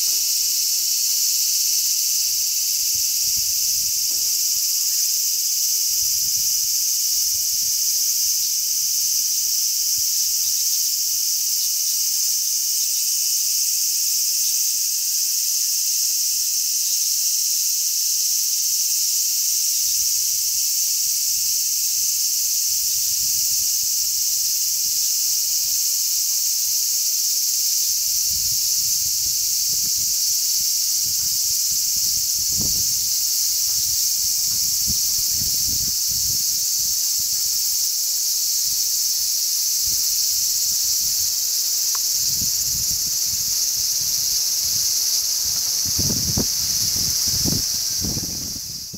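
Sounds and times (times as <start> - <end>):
cicadas chorus sizzling: 0.0 - 48.9
wind buffeting microphone: 28.2 - 30.3, 30.9 - 36.6, 42.2 - 48.9.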